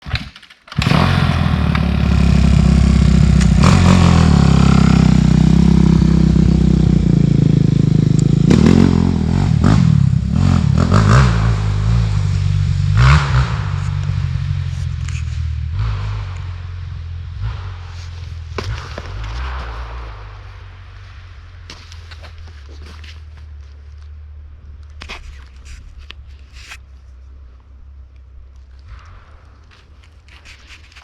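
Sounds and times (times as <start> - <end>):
dirt bike engine revving: 0.7 - 20.5.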